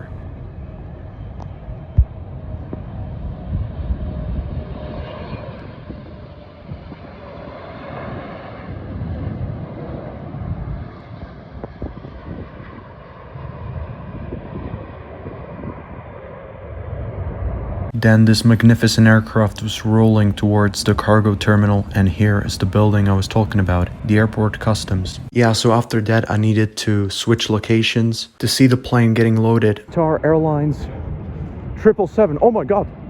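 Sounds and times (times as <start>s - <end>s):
faint engine whine: 0.0s - 33.0s
jet engines running: 0.0s - 33.0s.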